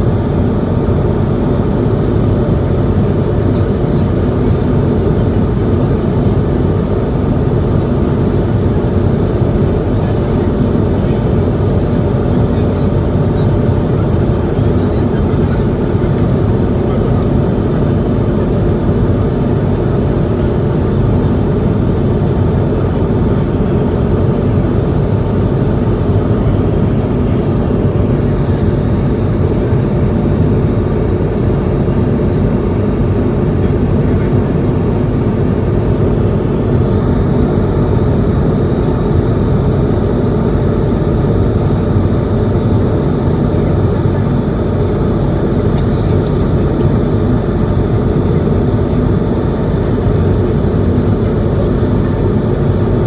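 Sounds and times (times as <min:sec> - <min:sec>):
airplane cabin drone: 0:00.0 - 0:53.0.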